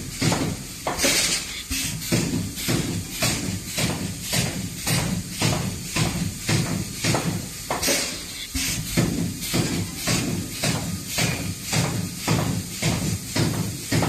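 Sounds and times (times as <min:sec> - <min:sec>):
welding machine clacking: 0:00.0 - 0:14.0
welding transformer hum: 0:00.0 - 0:14.0.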